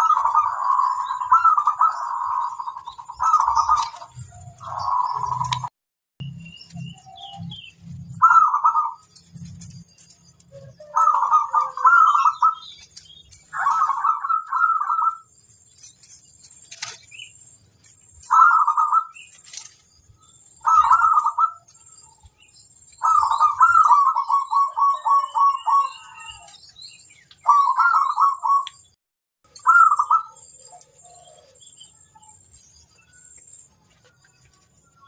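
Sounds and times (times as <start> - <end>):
dove cooing: 0.0 - 5.7, 8.2 - 9.1, 10.5 - 12.8, 13.5 - 15.3, 18.3 - 19.2, 20.6 - 21.6, 23.0 - 26.6, 27.4 - 28.7, 29.6 - 31.7.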